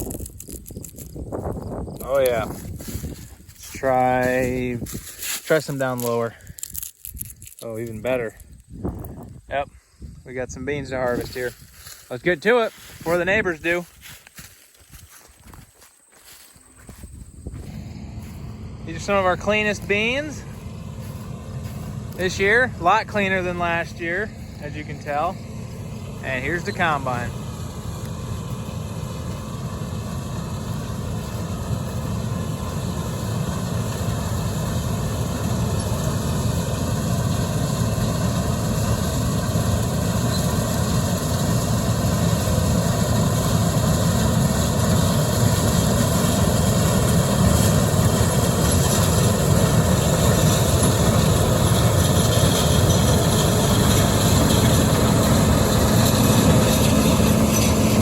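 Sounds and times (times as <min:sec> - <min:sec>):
combine harvester drone: 0:00.0 - 0:15.5, 0:16.2 - 0:58.0.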